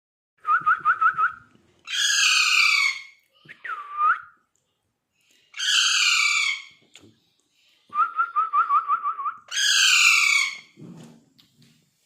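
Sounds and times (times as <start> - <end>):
bird screeching: 1.9 - 3.2, 5.6 - 6.8, 9.5 - 10.8.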